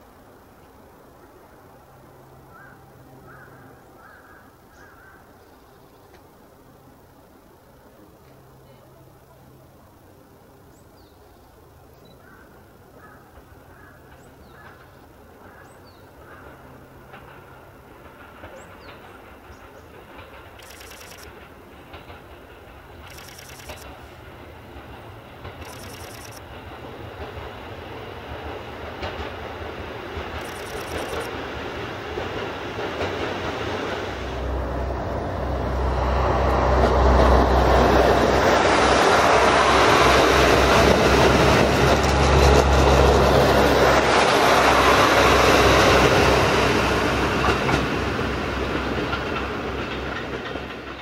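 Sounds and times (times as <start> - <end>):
wheels running on rails: 13.3 - 51.0.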